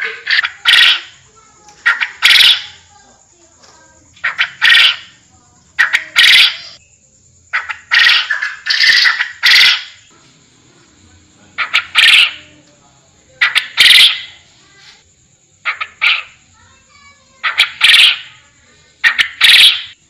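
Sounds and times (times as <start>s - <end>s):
quail calling harshly: 0.0s - 1.2s, 1.8s - 2.9s, 4.2s - 5.2s, 5.8s - 6.8s, 7.5s - 10.1s, 11.6s - 12.5s, 13.4s - 14.5s, 15.6s - 16.4s, 17.3s - 18.4s, 19.0s - 20.0s.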